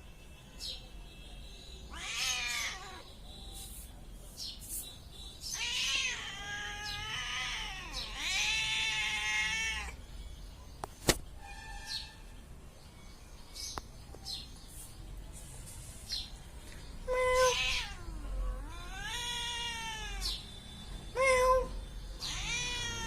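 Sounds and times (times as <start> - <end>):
cat meowing: 1.9 - 3.1, 5.5 - 10.0, 17.1 - 20.4, 21.1 - 23.0.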